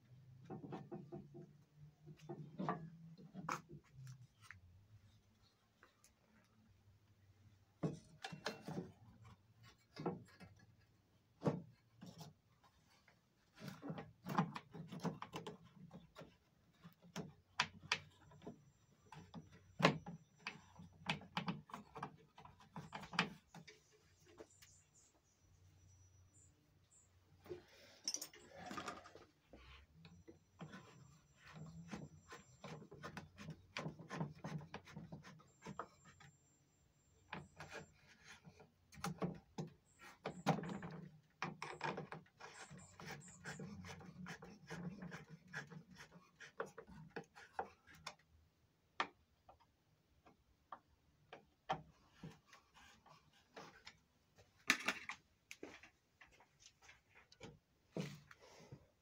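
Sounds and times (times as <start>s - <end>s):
faint handling noises: 49.5s - 59.0s.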